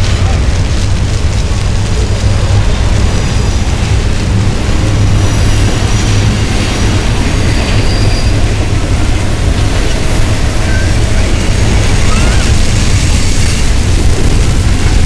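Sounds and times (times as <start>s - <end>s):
fountain jets splashing: 0.0s - 15.0s
freight train rumbling over bridge: 0.0s - 15.0s.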